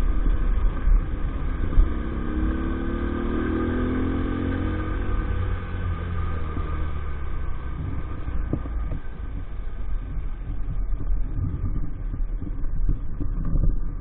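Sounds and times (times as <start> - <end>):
faint steady whine: 0.0 - 3.4, 4.0 - 14.0.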